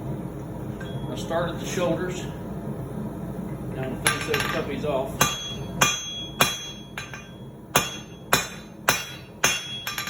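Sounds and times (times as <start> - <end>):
hammer striking steel on anvil: 4.0 - 10.0.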